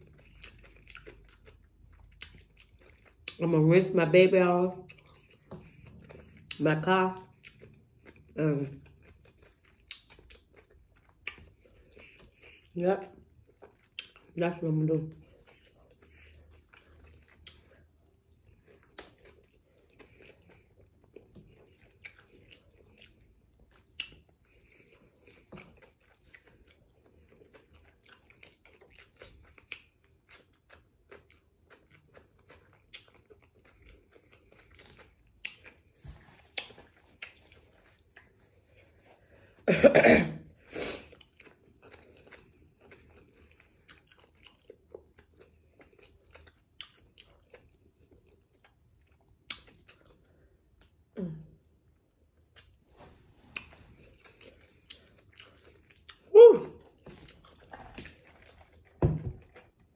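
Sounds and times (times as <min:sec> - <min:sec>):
chewing and biting food: 0:00.0 - 0:03.5, 0:04.5 - 0:39.7, 0:40.5 - 0:51.1, 0:51.9 - 0:59.9.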